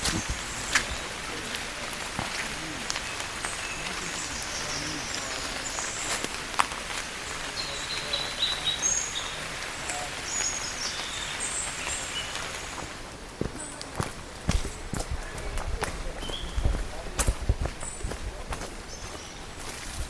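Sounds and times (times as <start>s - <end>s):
steady outdoor hiss: 0.0s - 20.0s
bird chirps and calls: 7.4s - 12.8s.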